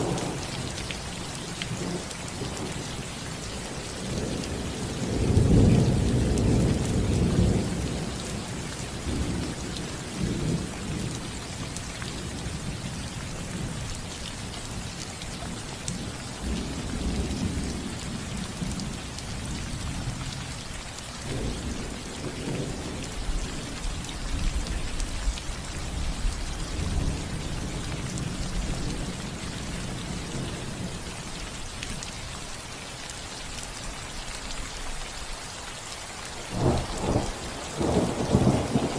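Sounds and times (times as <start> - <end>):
low rolling thunder: 0.0 - 0.8, 4.0 - 11.3, 36.5 - 38.9
rain on a roof: 0.0 - 38.9.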